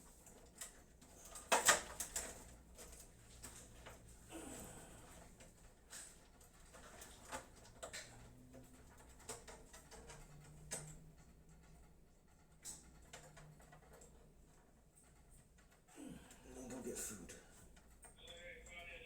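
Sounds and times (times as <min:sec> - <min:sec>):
small clicks handling computer parts: 0:00.2 - 0:04.1, 0:05.0 - 0:11.8.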